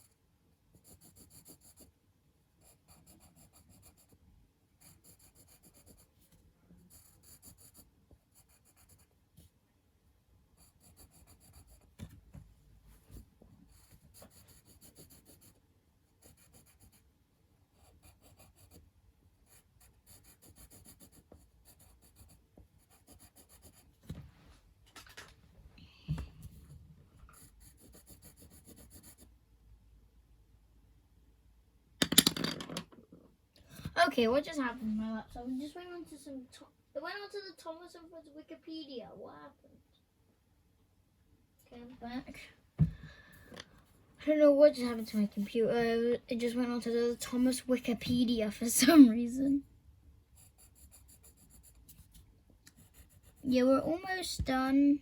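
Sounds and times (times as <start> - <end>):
drawing strokes scratching: 0.8 - 1.9, 2.6 - 4.2, 4.8 - 9.1, 10.6 - 12.1, 13.1 - 15.6, 16.2 - 17.1, 17.8 - 18.8, 19.4 - 24.0, 26.4 - 29.3, 50.3 - 54.3.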